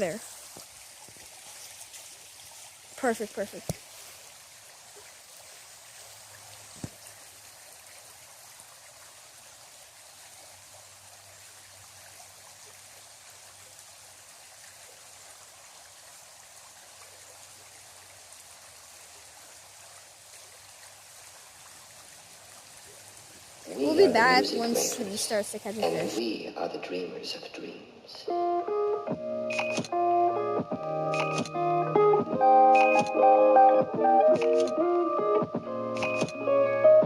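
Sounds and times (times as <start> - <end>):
creek water flowing: 0.0 - 26.4.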